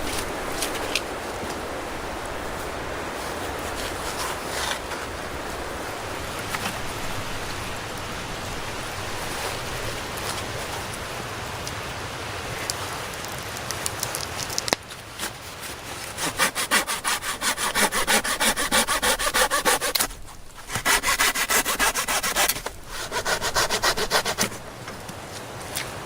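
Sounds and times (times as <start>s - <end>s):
hand saw cutting wood: 15.6s - 24.9s.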